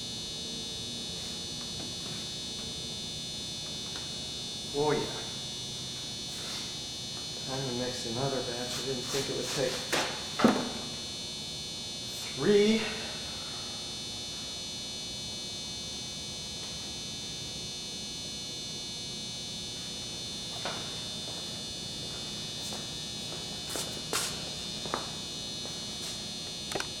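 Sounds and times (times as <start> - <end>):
high-pitched buzzing hum: 0.0 - 27.0.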